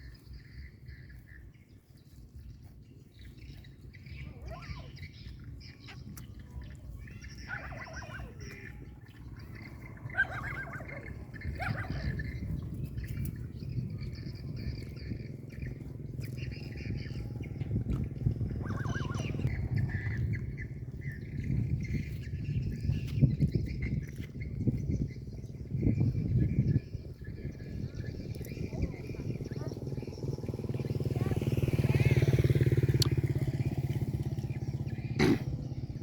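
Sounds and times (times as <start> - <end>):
birds squawking: 0.0 - 36.0
high bird chirping: 0.0 - 36.0
low rumble: 8.2 - 36.0.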